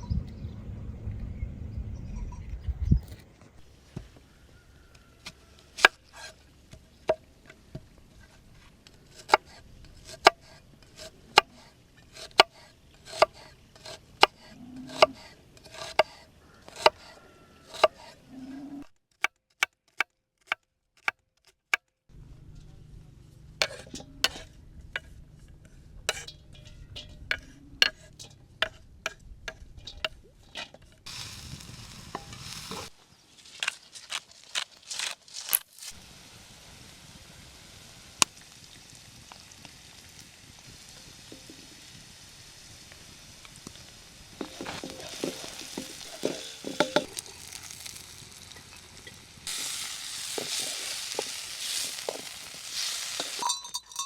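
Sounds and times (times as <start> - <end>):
utensil clinking against pot: 23.6 - 25.1, 26.1 - 30.9, 44.4 - 47.2, 50.3 - 54.0.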